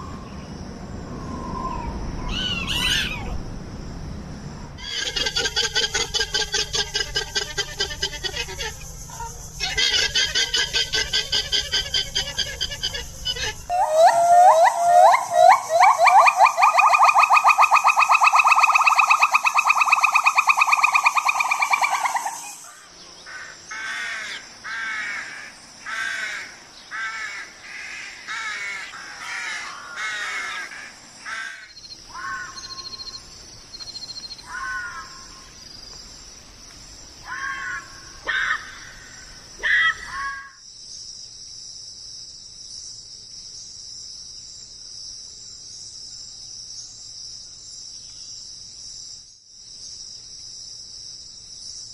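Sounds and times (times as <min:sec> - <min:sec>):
insects chirring: 0:00.0 - 0:51.9
rapidly pulsing buzz: 0:03.3 - 0:13.7
harsh crow-like caws: 0:23.2 - 0:33.0, 0:34.5 - 0:35.5, 0:37.2 - 0:40.6.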